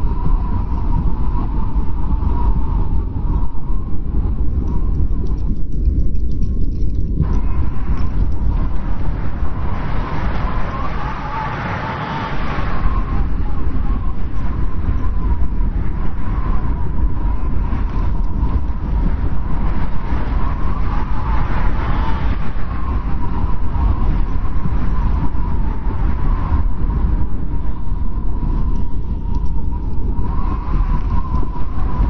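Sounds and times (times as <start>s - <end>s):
strong wind rumbling: 0.0s - 32.0s
wind whistling: 0.0s - 32.0s.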